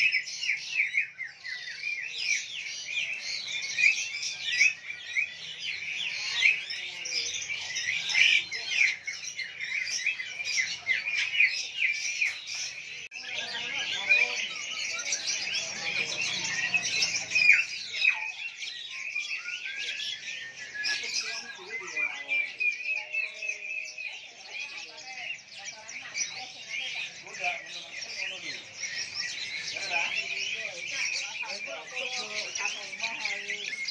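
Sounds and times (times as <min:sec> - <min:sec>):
songbirds chirping and whistling: 0:00.0 - 0:33.9.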